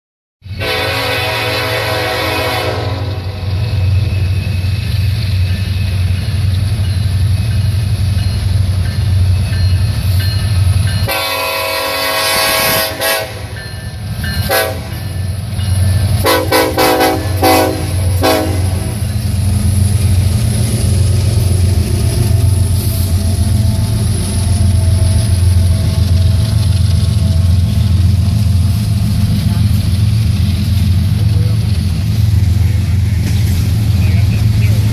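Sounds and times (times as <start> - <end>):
rumble of passing train: 0.4 - 34.9
locomotive horn blasts: 0.6 - 3.6, 11.0 - 13.6, 14.4 - 15.0, 16.2 - 19.0.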